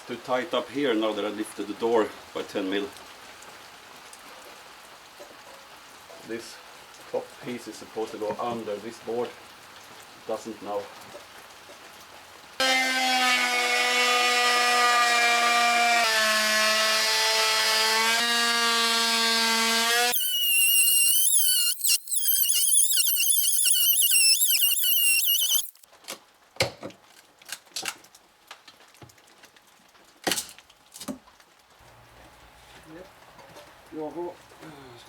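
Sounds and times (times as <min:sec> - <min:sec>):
power tool running: 0:16.9 - 0:25.8.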